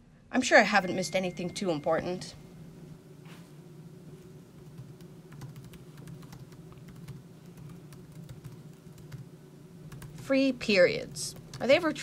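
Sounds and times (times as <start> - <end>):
typing on laptop keyboard: 4.6 - 9.3, 9.9 - 10.3.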